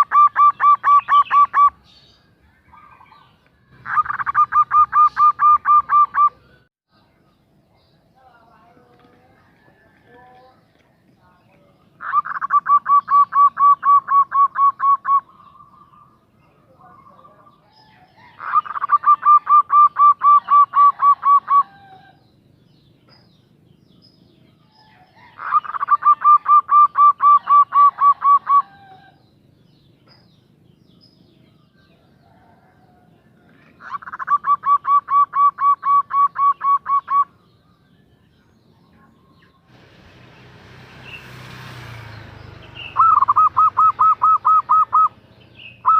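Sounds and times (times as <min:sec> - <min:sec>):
dove calling rapid notes: 0:00.0 - 0:01.9, 0:02.7 - 0:06.7, 0:11.9 - 0:16.2, 0:17.5 - 0:22.2, 0:24.9 - 0:29.2, 0:33.7 - 0:37.5, 0:42.6 - 0:45.9.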